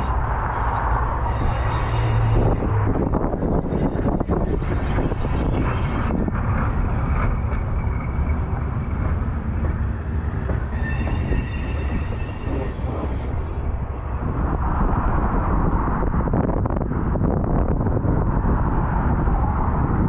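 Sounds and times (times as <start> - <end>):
high multi-tone squeal: 0.0 - 14.7
train rumbling by: 0.0 - 20.0.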